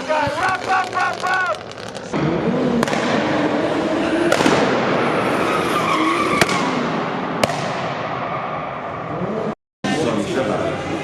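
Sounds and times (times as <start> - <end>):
sharp cracks: 0.0 - 3.6, 4.2 - 4.9, 5.6 - 8.2
loud rushing noise: 2.0 - 9.1
race car engine: 2.2 - 7.5.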